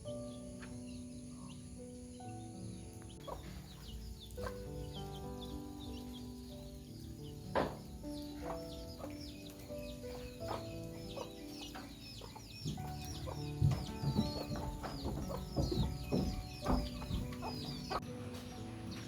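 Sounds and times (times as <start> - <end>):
birds chirping: 0.0 - 19.0
soft background music: 0.0 - 19.0.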